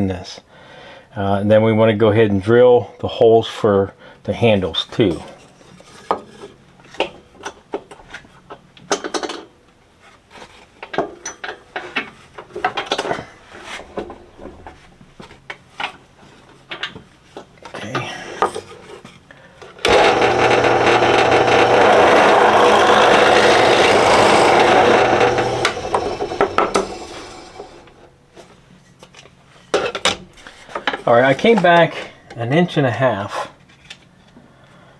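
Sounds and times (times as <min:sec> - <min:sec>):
power drill boring through wood: 0:19.8 - 0:28.1.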